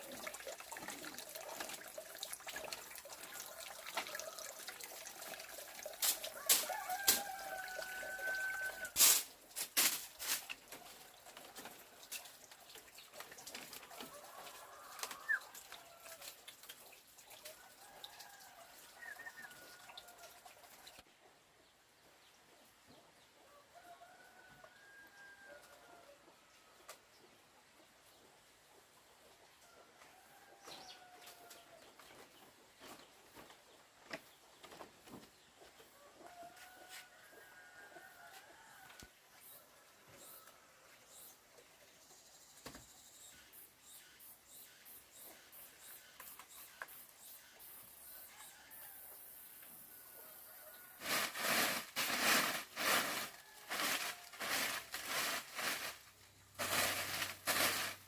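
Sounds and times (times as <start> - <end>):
rooster crowing faintly: 3.0 - 9.2, 13.9 - 16.4, 23.4 - 26.8, 35.8 - 41.0, 48.1 - 55.9.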